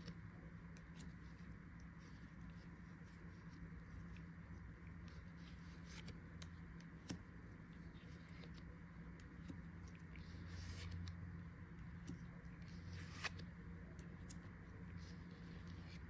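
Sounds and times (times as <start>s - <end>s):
low electrical hum: 0.0s - 16.0s
trading cards rustling and clicking: 11.8s - 16.0s.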